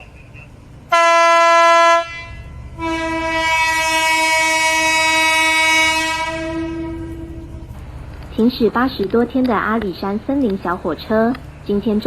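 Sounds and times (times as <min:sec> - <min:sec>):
train horn blasts: 0:00.9 - 0:07.7.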